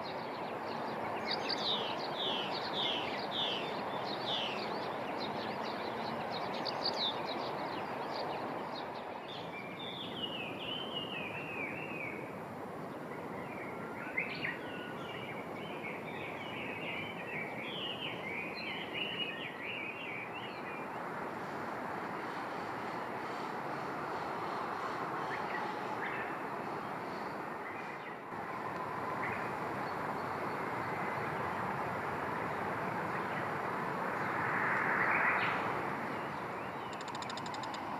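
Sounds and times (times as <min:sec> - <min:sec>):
songbird singing: 0:00.0 - 0:21.4, 0:22.1 - 0:37.9.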